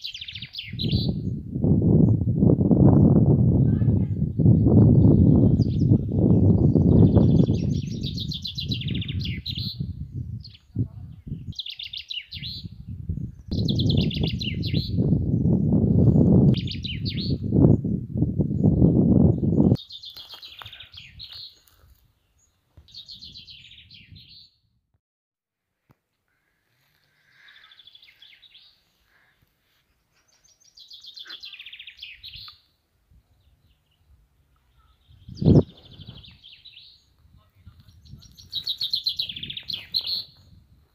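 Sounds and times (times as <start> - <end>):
songbird singing: 0.0 - 24.8, 26.3 - 40.9
songbird trilling: 30.7 - 32.7, 37.9 - 40.4.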